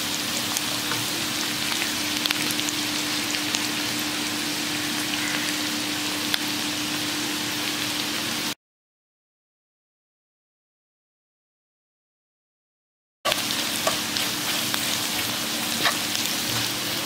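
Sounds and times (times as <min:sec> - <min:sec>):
vegetables sizzling in hot oil: 0:00.0 - 0:08.6, 0:13.3 - 0:17.0.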